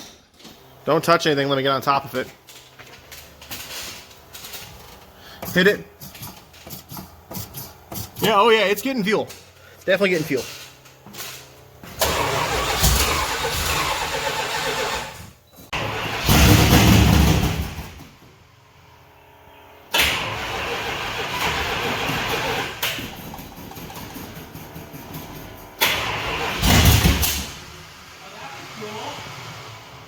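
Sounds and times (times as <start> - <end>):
engine starter cranking: 10.1 - 18.0, 19.9 - 27.6.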